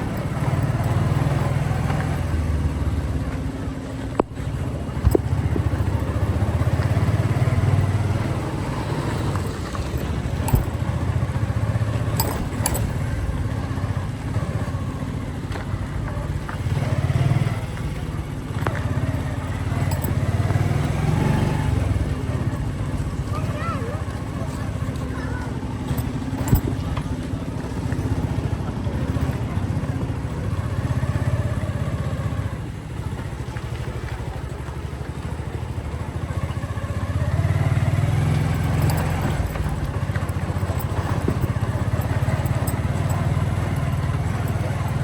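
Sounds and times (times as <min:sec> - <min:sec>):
motorcycle engine rumbling: 0:00.0 - 0:45.0.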